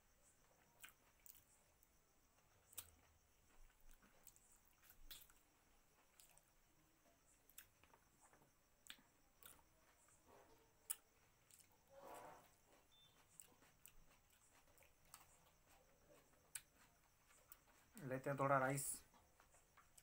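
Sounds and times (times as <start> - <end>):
chewing and lip smacks: 0.8 - 1.5, 2.7 - 6.5, 7.5 - 10.2, 10.8 - 11.7, 12.7 - 18.0.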